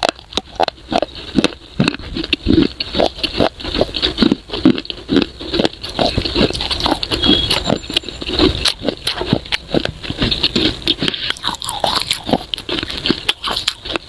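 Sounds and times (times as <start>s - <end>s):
crunchy chewing: 0.0s - 14.0s.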